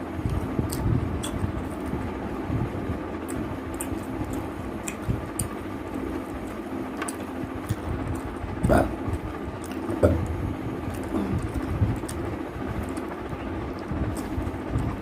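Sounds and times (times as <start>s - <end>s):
low background rumble: 0.0s - 15.0s
person chewing food: 0.2s - 1.9s, 3.2s - 13.1s, 13.7s - 15.0s
wet mouth clicks: 0.7s - 1.5s, 3.2s - 5.6s.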